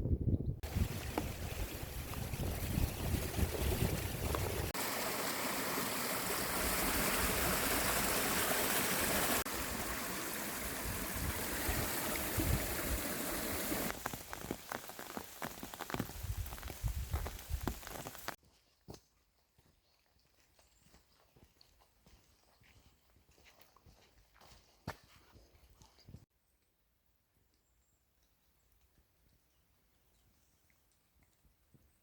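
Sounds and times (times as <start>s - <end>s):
low wind rumble: 0.0s - 4.8s
stream water rushing: 0.6s - 16.6s
crackles and clicks: 13.8s - 18.4s.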